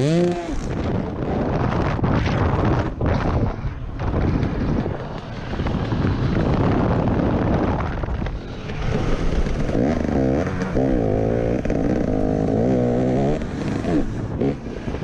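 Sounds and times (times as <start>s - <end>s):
motocross bike engine revving: 0.0s - 3.2s, 8.6s - 15.0s
wind buffeting microphone: 0.0s - 15.0s.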